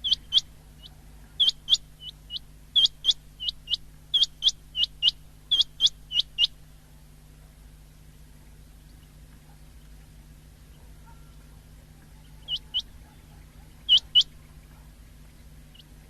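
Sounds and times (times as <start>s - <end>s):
quail calling: 0.0s - 6.6s, 10.7s - 15.0s
faint steady hum: 0.0s - 16.0s.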